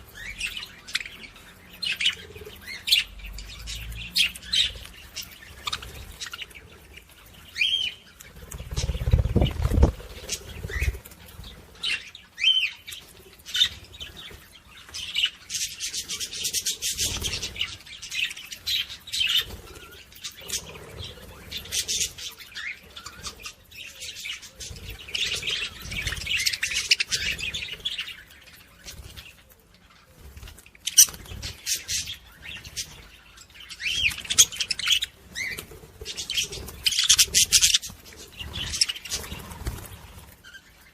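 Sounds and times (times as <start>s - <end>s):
small parrots chirping and chattering: 0.0s - 40.9s
wings flapping: 8.3s - 11.9s, 34.1s - 40.6s.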